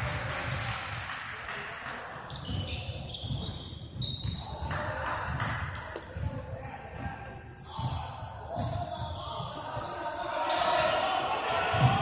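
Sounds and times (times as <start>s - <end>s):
basketball bouncing on gym floor: 2.3s - 6.5s, 7.7s - 9.6s
sneakers squeaking: 2.3s - 12.0s.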